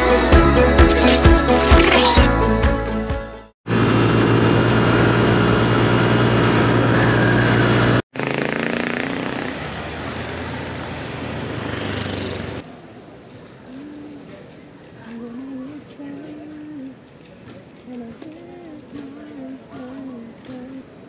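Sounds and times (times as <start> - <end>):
scooter engine running: 3.8 - 10.6, 11.3 - 12.6.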